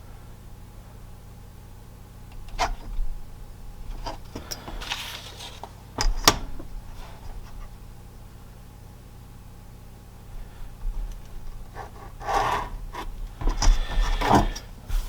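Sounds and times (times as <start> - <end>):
paper rustling: 3.9 - 6.0.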